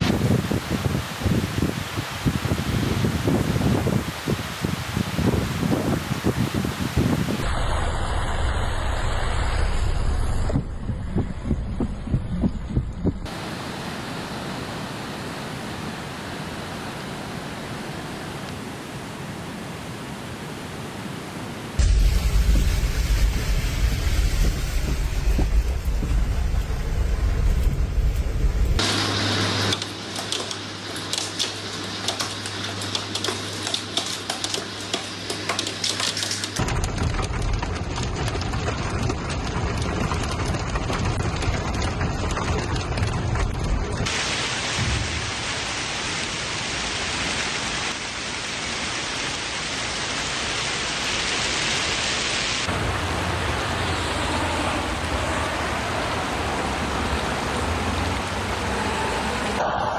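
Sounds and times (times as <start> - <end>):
wind buffeting microphone: 0.0 - 7.6, 10.0 - 15.8, 21.7 - 28.8
rushing water: 0.0 - 10.7, 13.2 - 59.9
steady low hum: 7.4 - 17.6, 21.8 - 29.7
irregular thumps: 10.5 - 13.3
rain pattering on hard surface: 21.8 - 28.8, 29.7 - 59.4.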